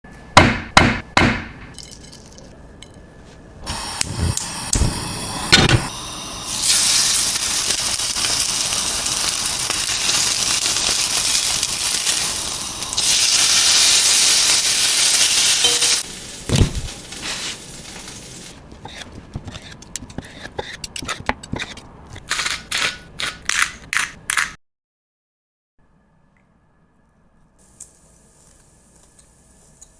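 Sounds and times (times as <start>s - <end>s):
steak sizzling in a hot pan: 6.5s - 17.6s.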